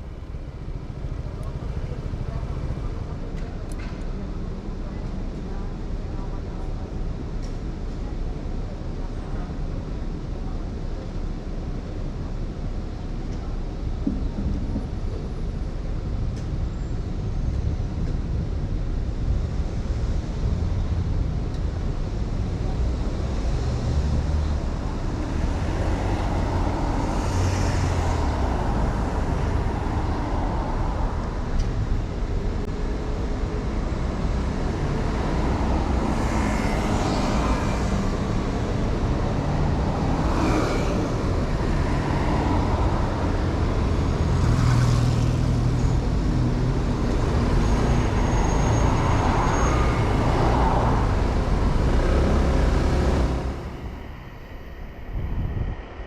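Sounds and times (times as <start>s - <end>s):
vehicles passing: 13.3s - 56.0s
wind rush on microphone: 45.3s - 56.0s.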